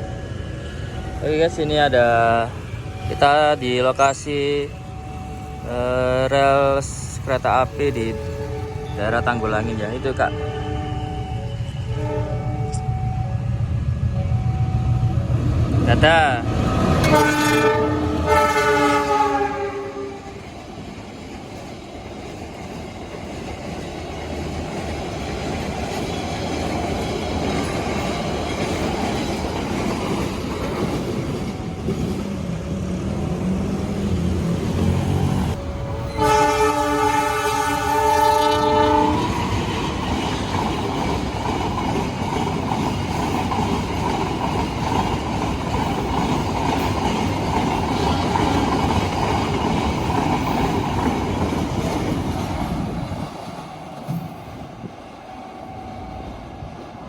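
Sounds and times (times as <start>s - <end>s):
train rumble: 0.0s - 57.0s
train horn: 8.0s - 13.4s, 16.8s - 20.4s, 34.8s - 39.5s.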